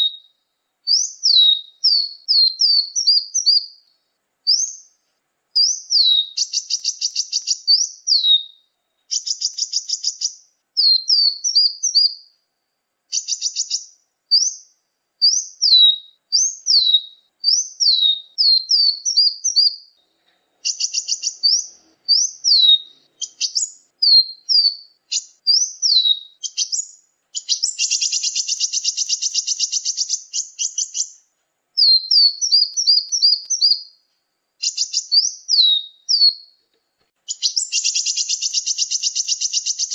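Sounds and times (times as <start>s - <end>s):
bird buzzing rattles: 5.6s - 7.7s, 9.1s - 10.4s, 26.5s - 31.2s
songbird whistled chips: 5.6s - 8.5s, 9.1s - 12.2s, 20.7s - 31.2s, 31.8s - 33.9s, 34.6s - 36.5s, 37.3s - 39.9s.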